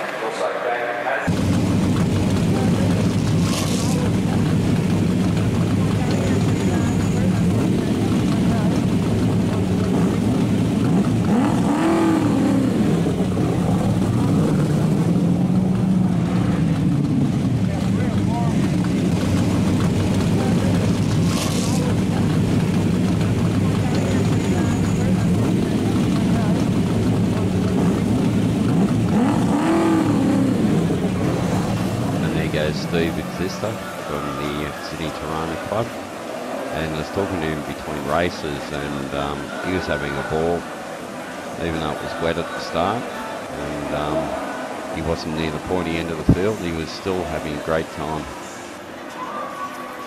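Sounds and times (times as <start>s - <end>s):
racing car engines running: 1.2s - 49.2s
engine revving: 1.3s - 36.0s.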